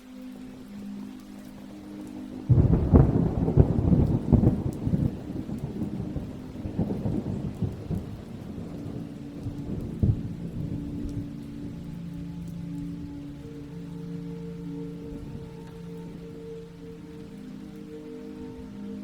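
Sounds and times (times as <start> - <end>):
steady rain: 0.0 - 19.0
thunder rumbling: 2.2 - 19.0.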